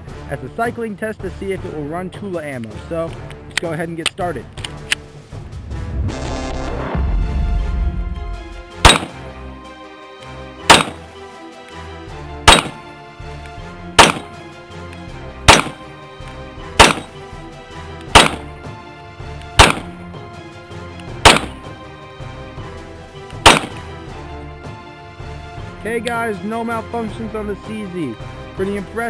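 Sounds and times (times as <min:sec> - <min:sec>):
background music: 0:00.0 - 0:29.0
pistol shots: 0:08.8 - 0:09.3, 0:10.7 - 0:11.1, 0:12.5 - 0:12.9, 0:14.0 - 0:14.4, 0:15.5 - 0:15.8, 0:16.8 - 0:17.2, 0:18.1 - 0:18.6, 0:19.5 - 0:20.0, 0:21.2 - 0:21.7, 0:23.4 - 0:23.9.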